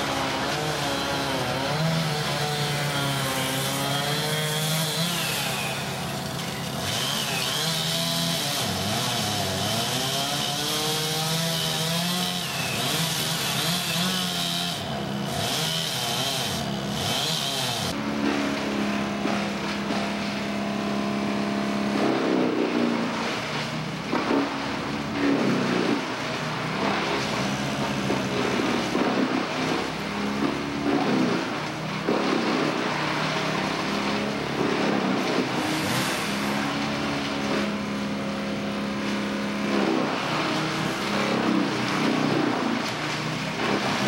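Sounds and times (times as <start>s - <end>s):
machinery engine running: 17.9s - 44.0s.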